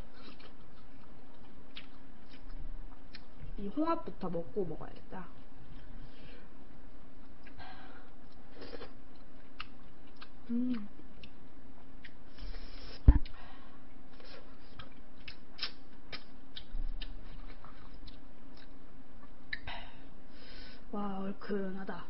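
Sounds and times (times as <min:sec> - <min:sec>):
chewing with wet mouth clicks: 0:00.3 - 0:03.4, 0:07.2 - 0:12.2, 0:14.6 - 0:19.7.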